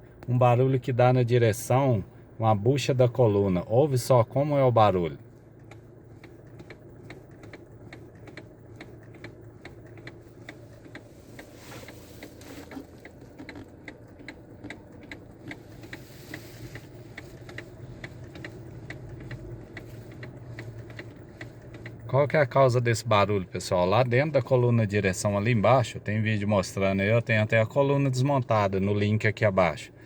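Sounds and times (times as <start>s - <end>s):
diesel engine idling: 0.0s - 30.0s
steering column clicking: 4.0s - 25.7s.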